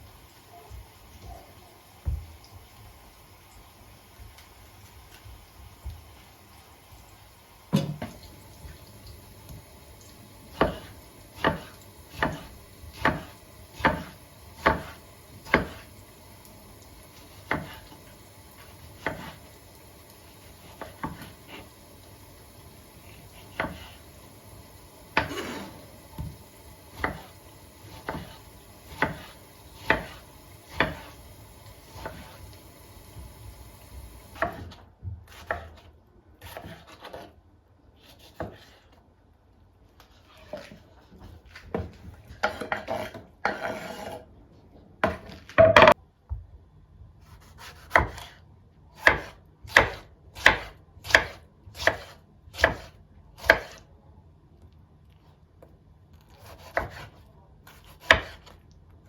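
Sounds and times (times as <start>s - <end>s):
knife chopping on wooden board: 10.5s - 15.9s, 17.3s - 18.0s, 18.8s - 19.4s, 20.6s - 21.6s, 23.4s - 24.0s, 25.1s - 31.2s, 31.9s - 32.4s, 34.4s - 37.3s, 38.2s - 38.8s, 47.3s - 48.4s, 49.0s - 53.8s, 56.4s - 58.6s.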